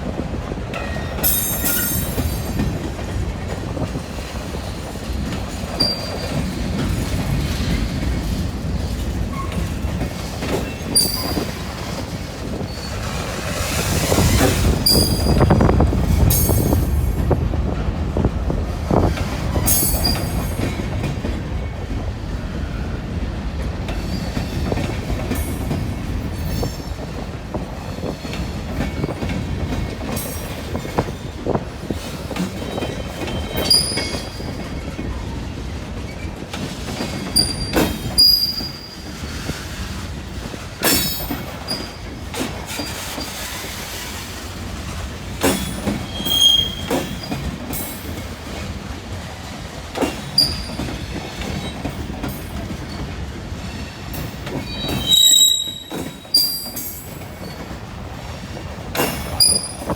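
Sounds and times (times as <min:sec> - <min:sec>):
train wheels rumbling on rail: 0:00.0 - 0:59.9
high-pitched wheel squeals: 0:46.0 - 0:47.3, 0:54.6 - 0:56.8, 0:59.0 - 0:59.9.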